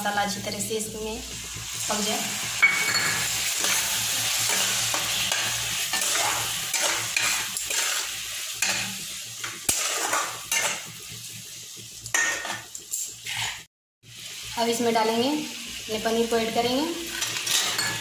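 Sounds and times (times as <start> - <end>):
food sizzling in hot oil: 0.0 - 18.0
spatula scraping a pan: 2.9 - 9.0, 12.1 - 13.7, 17.1 - 18.0.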